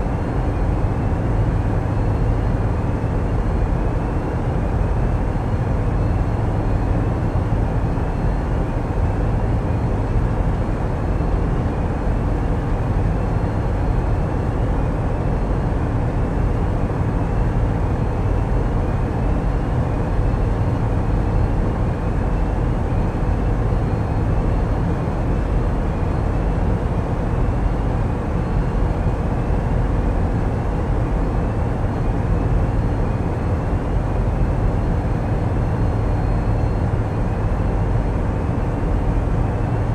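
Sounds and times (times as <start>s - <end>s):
diesel engines droning: 0.0s - 39.9s.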